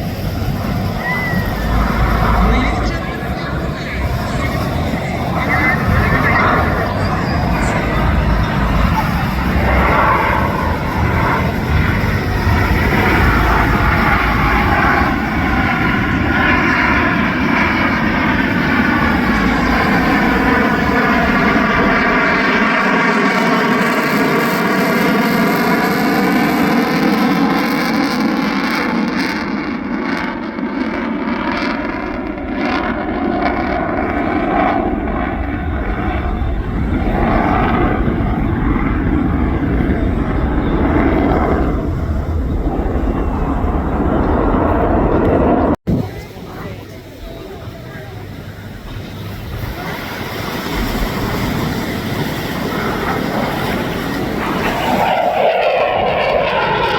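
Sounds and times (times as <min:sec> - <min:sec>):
jet flying past: 0:00.0 - 0:56.9.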